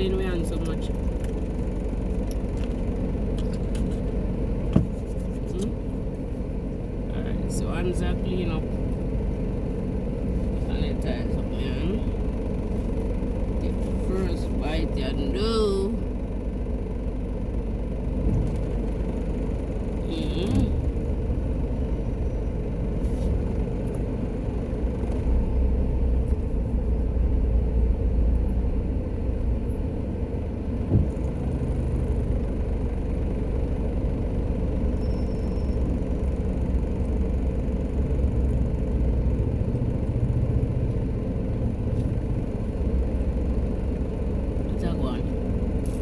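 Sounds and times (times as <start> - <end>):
car interior rumble: 0.0 - 46.0
brief thump: 4.7 - 5.0, 30.9 - 31.2.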